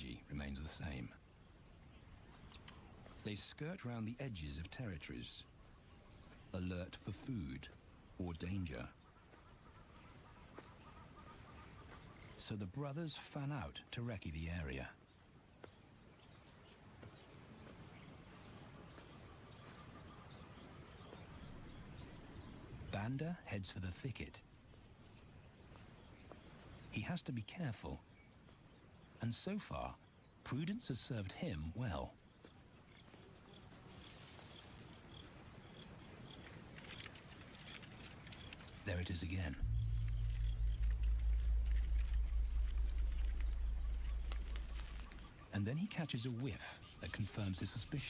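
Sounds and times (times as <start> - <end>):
low background rumble: 38.8 - 45.6.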